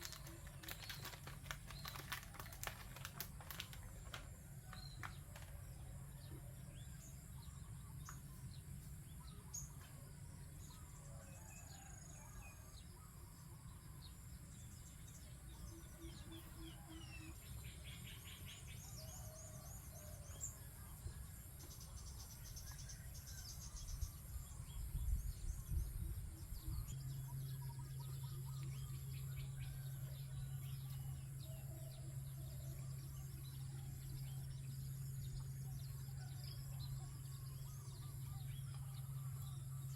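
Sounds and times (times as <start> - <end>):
small birds chirping: 0.0 - 5.6
low hum: 19.7 - 39.9.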